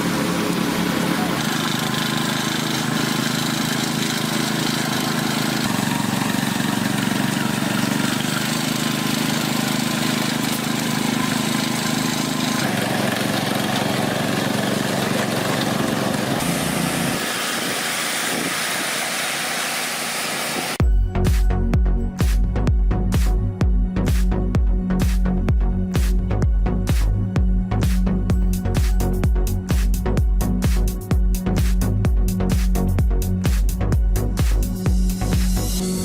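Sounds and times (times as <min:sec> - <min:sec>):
machinery engine humming: 0:00.0 - 0:19.1.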